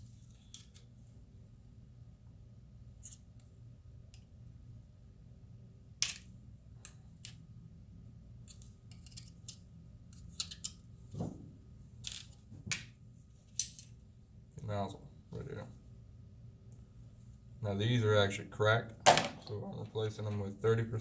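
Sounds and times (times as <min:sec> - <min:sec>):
small metal parts clicking: 0:08.5 - 0:10.8.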